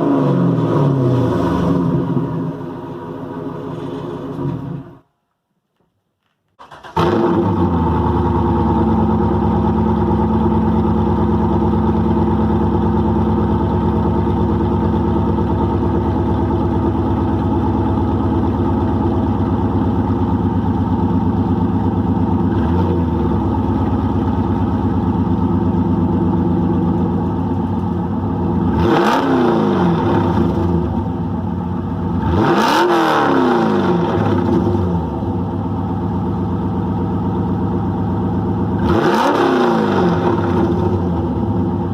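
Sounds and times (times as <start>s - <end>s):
car engine idling and revving: 0.0s - 5.1s, 6.6s - 41.9s.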